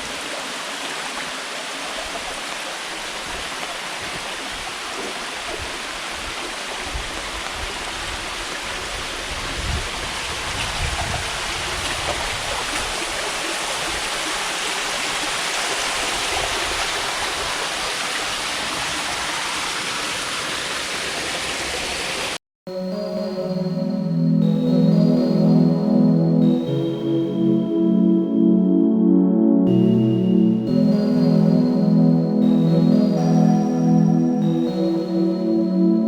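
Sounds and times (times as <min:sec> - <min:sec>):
water rushing over rocks: 0:00.0 - 0:22.4.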